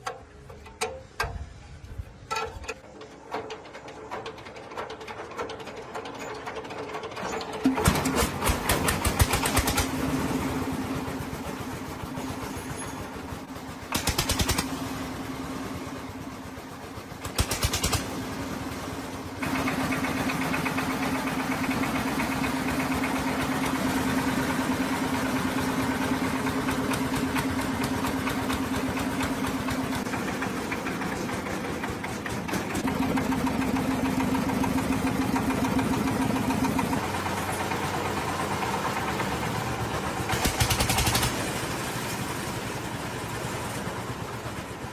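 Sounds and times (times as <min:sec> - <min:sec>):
diesel engine running: 0:00.0 - 0:44.9
rattling bursts: 0:12.2 - 0:15.4, 0:16.4 - 0:23.7, 0:25.6 - 0:42.6.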